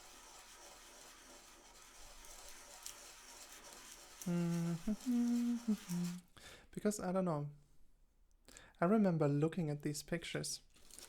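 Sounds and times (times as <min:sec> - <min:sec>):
rubbing and handling noise: 0:00.0 - 0:06.3, 0:10.7 - 0:11.0
person humming hmm: 0:04.3 - 0:06.2.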